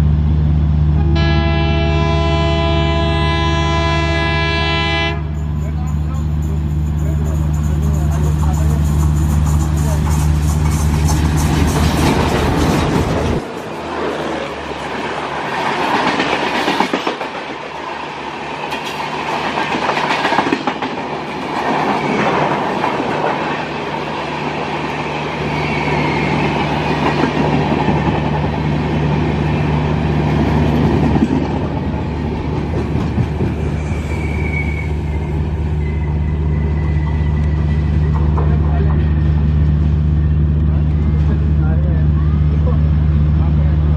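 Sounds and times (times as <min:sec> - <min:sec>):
train wheels clattering: 0:05.4 - 0:14.1, 0:30.8 - 0:34.7
thin wheel squeal: 0:33.7 - 0:38.3.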